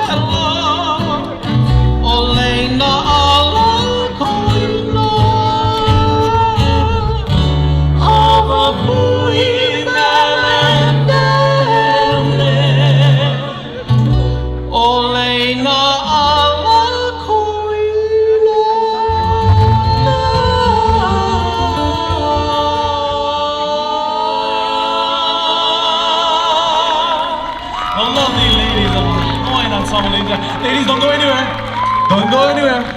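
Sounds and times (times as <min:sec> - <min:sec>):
plucked acoustic guitar: 0:00.0 - 0:17.6, 0:19.0 - 0:23.8, 0:28.0 - 0:32.9
bass: 0:00.0 - 0:32.9
voices singing in harmony: 0:08.0 - 0:14.1, 0:18.9 - 0:32.9.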